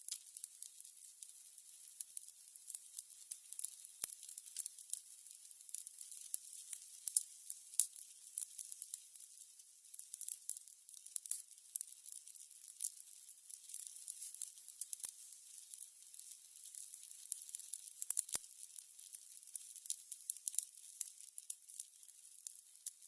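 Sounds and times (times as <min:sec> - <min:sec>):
candles crackling: 0:00.0 - 0:23.0.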